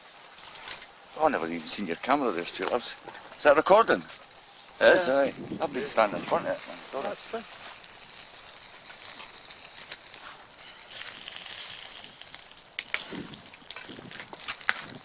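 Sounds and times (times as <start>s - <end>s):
crackles and pops: 0.0s - 15.0s
steak sizzling in a pan: 0.0s - 15.0s.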